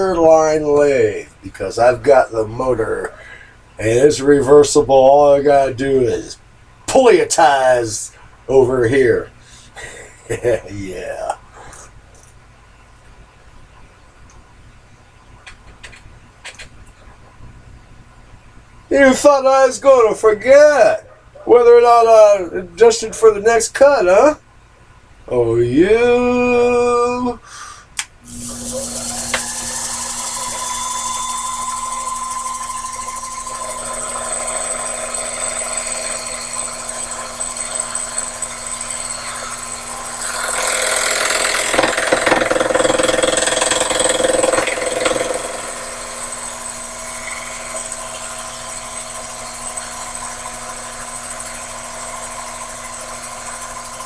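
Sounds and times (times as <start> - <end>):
lathe motor whine: 28.2 - 54.0
lathe tool cutting metal: 28.3 - 54.0.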